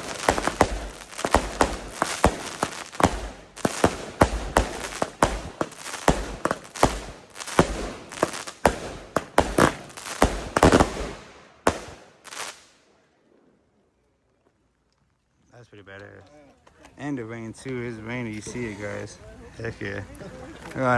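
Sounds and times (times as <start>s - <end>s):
firework aerial bangs: 0.0s - 12.8s.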